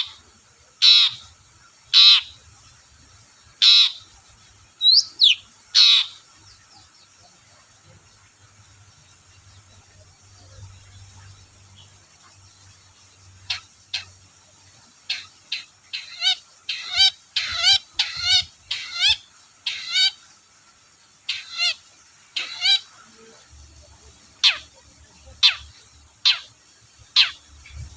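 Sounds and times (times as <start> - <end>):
bird harsh chattering calls: 0.8 - 2.4, 3.6 - 4.2, 4.8 - 6.6, 13.0 - 20.3, 21.2 - 23.2, 24.1 - 27.9.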